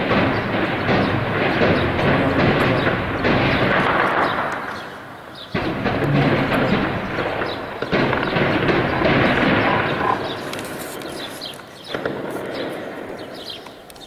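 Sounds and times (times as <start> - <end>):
weaker bang: 0.0 - 10.8
artillery boom echoing: 0.0 - 13.4.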